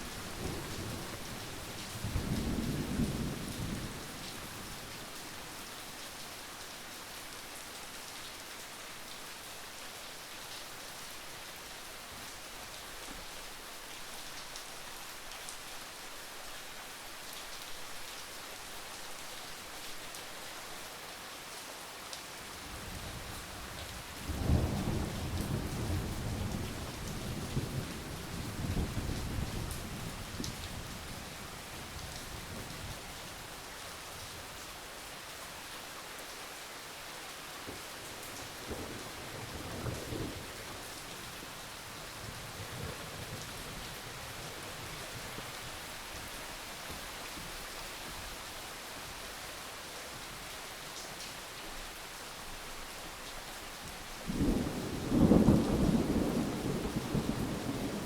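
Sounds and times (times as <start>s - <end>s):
steady rain falling: 0.0s - 58.0s
thunder rumbling: 54.3s - 58.0s.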